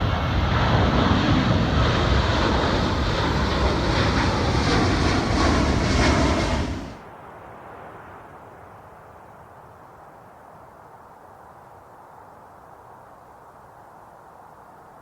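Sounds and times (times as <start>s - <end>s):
airplane engines running: 0.0s - 7.4s.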